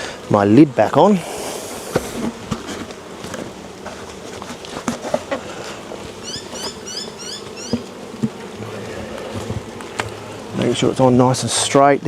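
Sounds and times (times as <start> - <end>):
honeybees buzzing: 0.0 - 12.0
hive lid knocks and clicks: 1.9 - 6.8, 7.4 - 10.8
bird chirping: 6.2 - 7.8.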